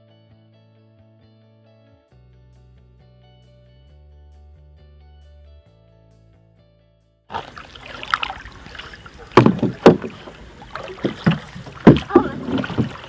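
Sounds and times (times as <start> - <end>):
paddles knocking against canoe: 7.3 - 13.0
paddles splashing water: 7.3 - 13.0
children calling out: 12.0 - 13.0.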